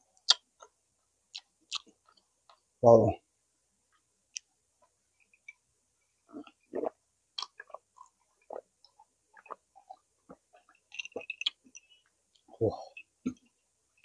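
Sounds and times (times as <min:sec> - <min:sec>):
chewing and mouth sounds: 0:00.2 - 0:02.6, 0:06.2 - 0:13.6.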